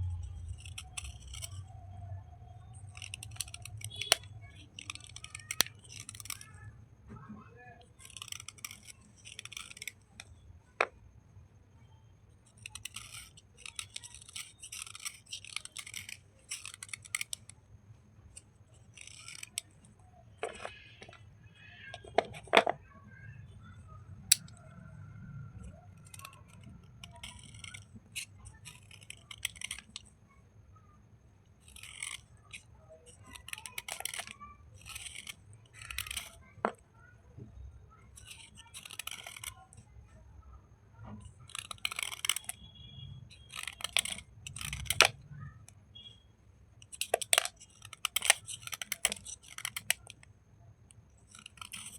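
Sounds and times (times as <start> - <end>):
gritty scratching and crunching: 0.0 - 1.7, 2.7 - 6.4, 12.5 - 17.5, 25.4 - 30.1, 31.6 - 36.8, 38.2 - 39.7, 41.2 - 45.3, 46.9 - 50.2, 51.2 - 51.9.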